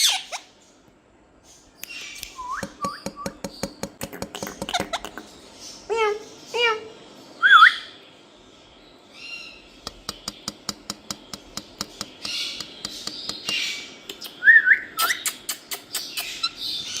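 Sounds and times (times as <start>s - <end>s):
parrot squawking: 0.0s - 0.5s, 4.0s - 5.3s.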